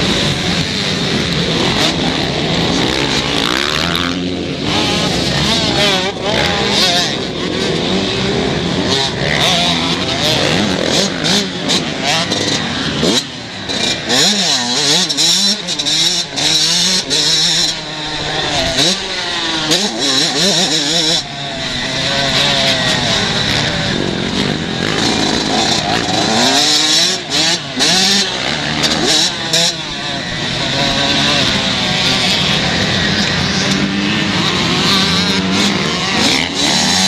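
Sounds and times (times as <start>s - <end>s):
motocross bikes revving: 0.0s - 37.0s.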